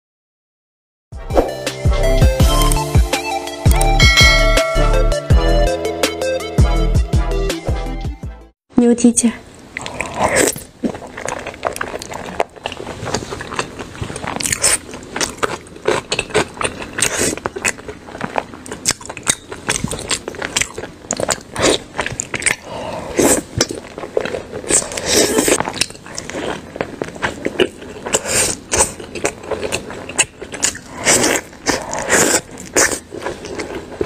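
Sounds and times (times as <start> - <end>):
chewing with wet mouth smacks: 9.7 - 34.0.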